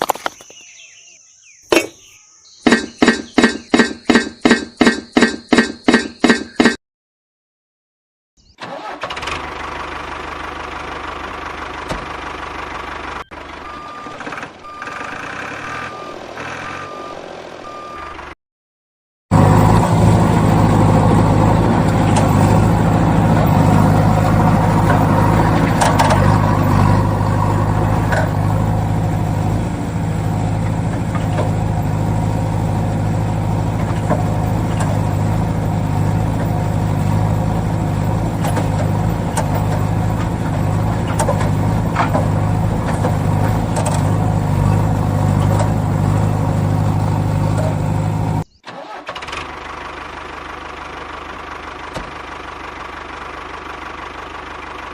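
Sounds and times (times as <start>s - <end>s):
low engine drone: 19.3s - 54.9s.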